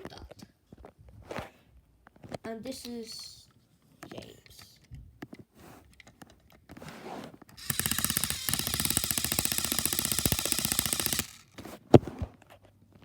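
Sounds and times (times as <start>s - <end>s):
fast rattling noise: 7.6s - 11.6s.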